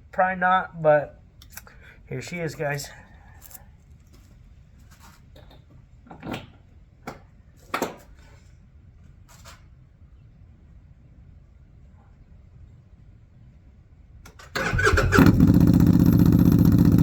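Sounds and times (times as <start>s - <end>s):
low steady rumble: 15.0s - 17.0s.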